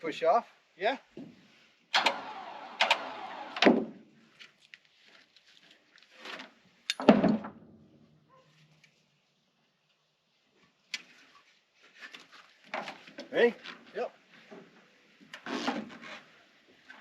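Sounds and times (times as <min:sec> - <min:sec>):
metal knocks and clunks: 0:06.9 - 0:07.9.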